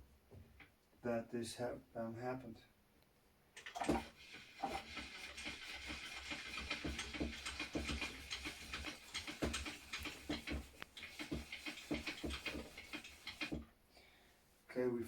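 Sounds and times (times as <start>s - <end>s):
tools clicking and knocking on workbench: 6.2s - 13.7s.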